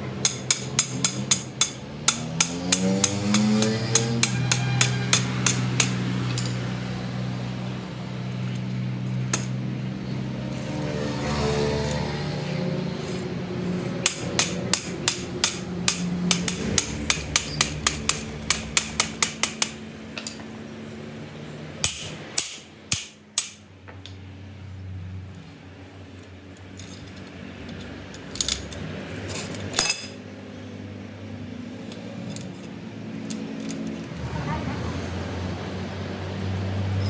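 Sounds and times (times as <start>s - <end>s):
hammer blows on metal: 0.2s - 6.6s.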